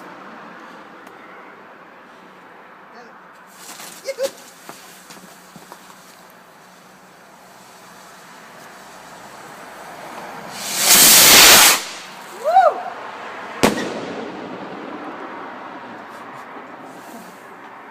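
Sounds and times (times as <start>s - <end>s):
firework rocket whooshing: 6.6s - 12.9s, 13.6s - 15.2s
firework bang: 10.5s - 12.3s, 13.6s - 15.2s.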